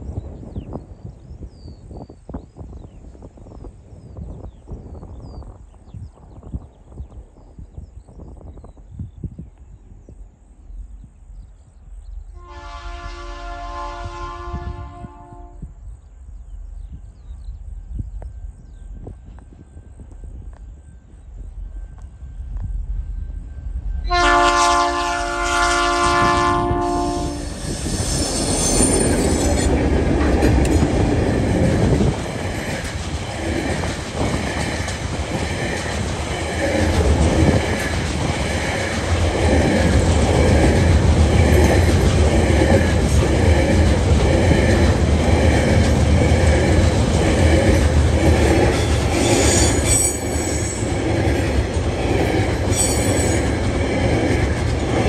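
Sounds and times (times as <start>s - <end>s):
train rumbling and wheels clattering: 0.0s - 55.0s
locomotive horn chord: 12.4s - 15.6s, 24.1s - 27.6s
high-pitched wheel squeal: 27.0s - 29.7s, 48.8s - 50.8s.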